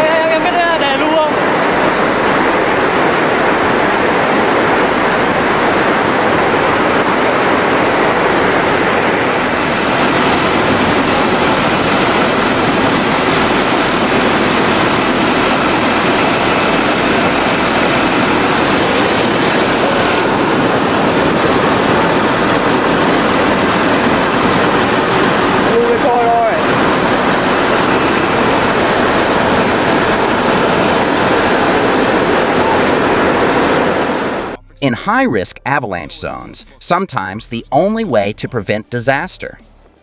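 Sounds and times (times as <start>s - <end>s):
rushing floodwater roar: 0.0s - 34.6s.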